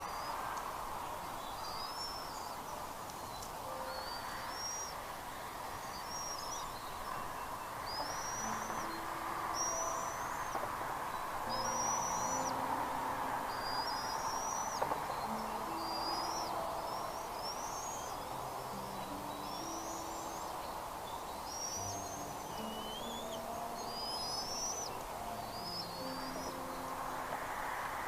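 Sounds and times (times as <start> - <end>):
steady hiss: 0.0 - 28.0
eagle giving high whistled calls: 21.5 - 26.6.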